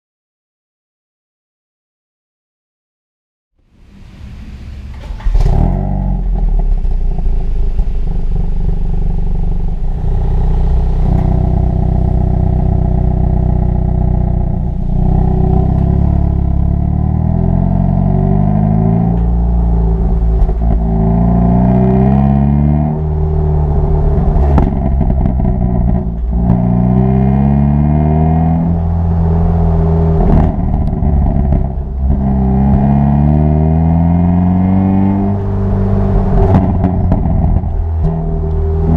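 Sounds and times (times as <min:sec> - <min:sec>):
car engine revving: 0:03.7 - 0:38.9
exhaust pops: 0:03.8 - 0:16.9, 0:18.0 - 0:22.0, 0:23.6 - 0:27.2, 0:30.1 - 0:33.2, 0:35.3 - 0:38.9.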